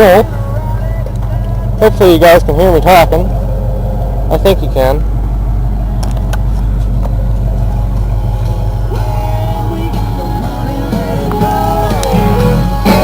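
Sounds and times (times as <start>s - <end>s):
engine running at low revs: 0.0s - 13.0s
rock music with singing: 7.8s - 13.0s.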